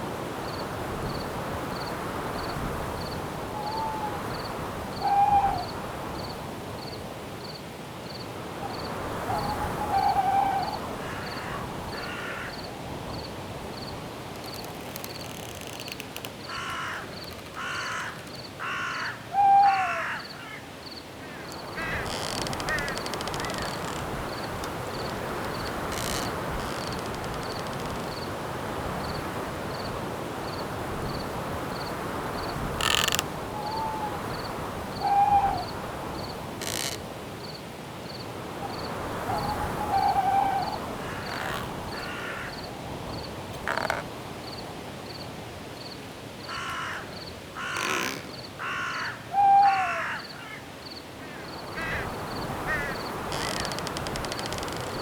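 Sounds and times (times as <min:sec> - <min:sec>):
wind in trees: 0:00.0 - 0:55.0
crickets chirping: 0:00.1 - 0:55.0
owl hoots: 0:03.6 - 0:04.2, 0:05.0 - 0:05.8, 0:09.2 - 0:12.5, 0:17.6 - 0:20.6, 0:32.8 - 0:34.3, 0:35.0 - 0:35.8, 0:39.2 - 0:42.5, 0:47.6 - 0:50.2
harsh bird calls: 0:21.3 - 0:28.0, 0:39.2 - 0:42.6.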